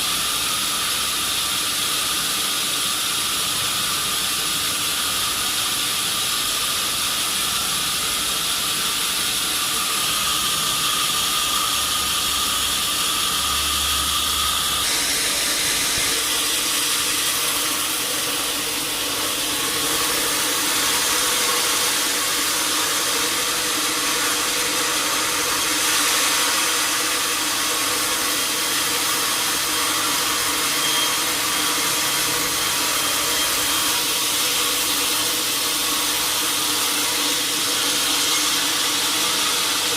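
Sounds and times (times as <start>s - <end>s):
saw cutting log: 8.0s - 39.9s.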